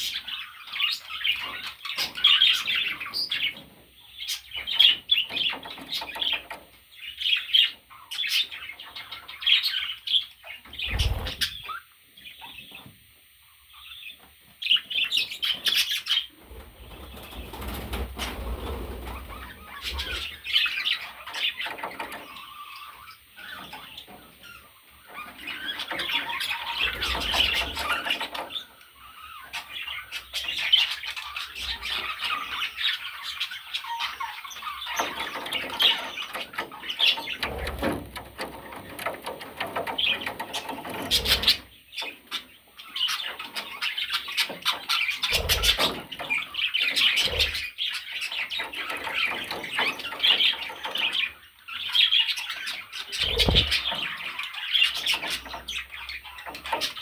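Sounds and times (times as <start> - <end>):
budgerigars chattering and squawking: 0.0 - 12.9, 13.7 - 57.0
wing flapping: 10.8 - 11.6, 53.2 - 54.0.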